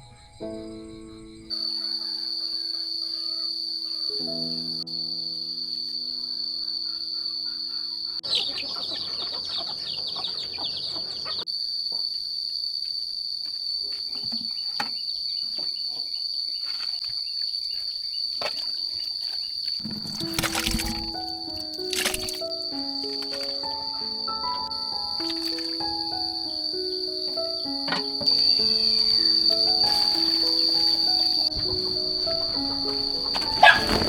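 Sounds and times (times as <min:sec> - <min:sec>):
crickets chirring: 0:00.0 - 0:34.0
sustained musical notes: 0:20.1 - 0:34.0.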